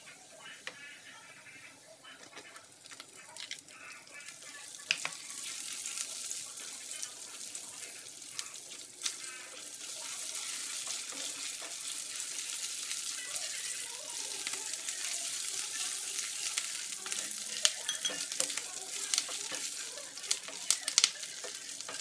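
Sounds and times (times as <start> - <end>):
garlic sizzling in hot oil: 0.0 - 22.0
spatula scraping and tapping pan: 2.2 - 3.6, 4.8 - 5.6, 10.4 - 12.5, 15.9 - 22.0.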